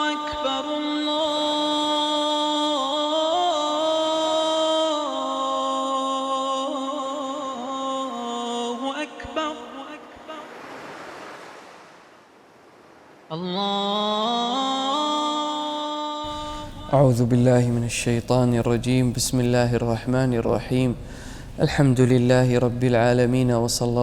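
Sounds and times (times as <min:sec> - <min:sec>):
solo voice chanting: 0:00.0 - 0:10.6, 0:13.3 - 0:24.0.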